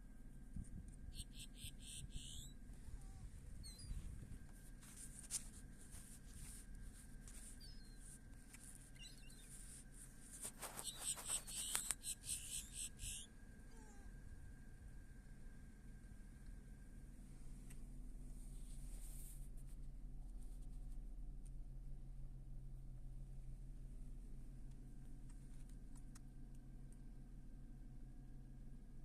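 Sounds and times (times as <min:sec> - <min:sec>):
faint gull calls: 0:01.2 - 0:04.0, 0:10.6 - 0:14.1
rustling noise: 0:03.2 - 0:12.2, 0:18.4 - 0:20.9.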